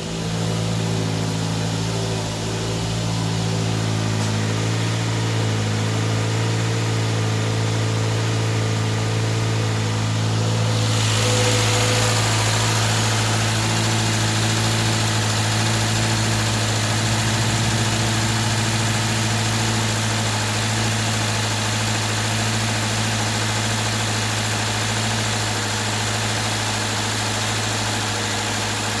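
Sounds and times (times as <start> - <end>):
car engine idling: 0.0 - 29.0
broad hiss: 10.6 - 20.7.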